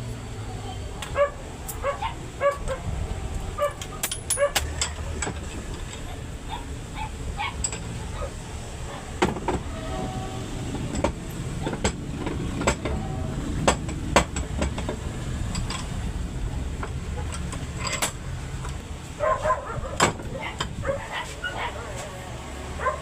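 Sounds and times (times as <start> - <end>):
diesel truck engine running: 0.0 - 23.0
metallic clicks and knocks: 3.7 - 6.1, 7.5 - 8.0, 10.8 - 13.0, 13.6 - 16.1, 16.7 - 18.8.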